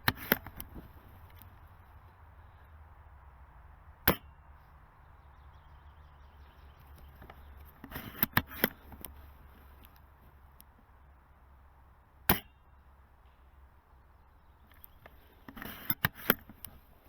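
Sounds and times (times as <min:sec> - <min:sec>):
rifle bolt metallic clicks: 0:00.0 - 0:00.7, 0:06.9 - 0:09.2, 0:14.7 - 0:16.8.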